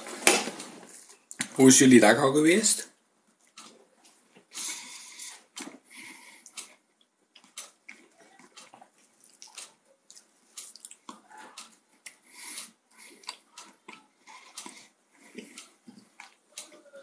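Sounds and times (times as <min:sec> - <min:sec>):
chewing and wet mouth smacks: 0:03.4 - 0:16.7.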